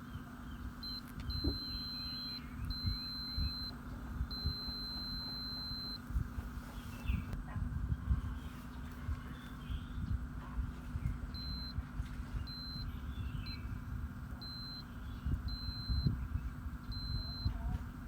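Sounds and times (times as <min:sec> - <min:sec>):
electronic beeper tone: 0:00.8 - 0:06.0, 0:11.4 - 0:11.8, 0:12.4 - 0:13.8, 0:14.4 - 0:17.7.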